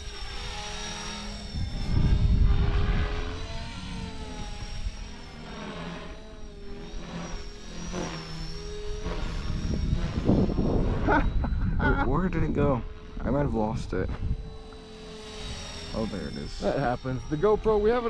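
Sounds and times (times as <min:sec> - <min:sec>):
rc helicopter rotor whine: 0:00.0 - 0:18.0
wind buffeting microphone: 0:01.5 - 0:05.1, 0:08.8 - 0:18.0.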